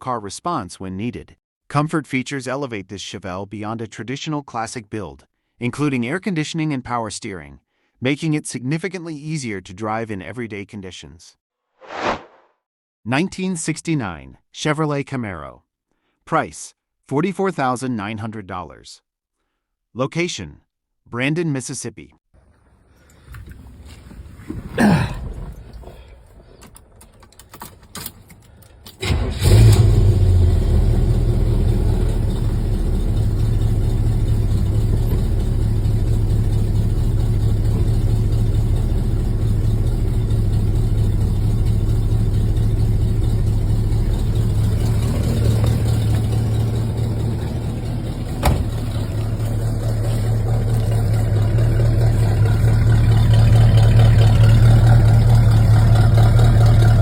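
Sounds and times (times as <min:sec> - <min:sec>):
car engine starting and idling: 0:22.6 - 0:57.0.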